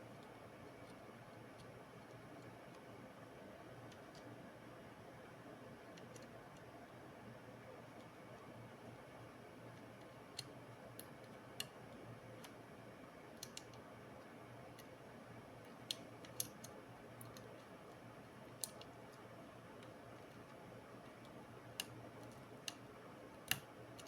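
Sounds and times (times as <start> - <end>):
faint steady hum: 0.0 - 24.0
small sharp clicks: 9.8 - 11.8, 13.4 - 13.8, 15.7 - 17.7, 18.5 - 19.2, 19.8 - 24.0.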